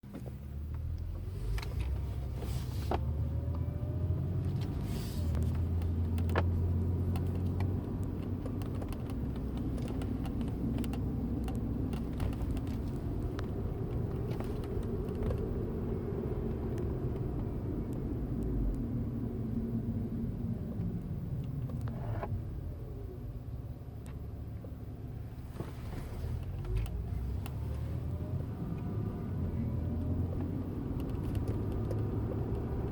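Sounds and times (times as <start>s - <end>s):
engine and road rumble: 0.0s - 32.9s
small clicks and ticks: 5.5s - 15.6s.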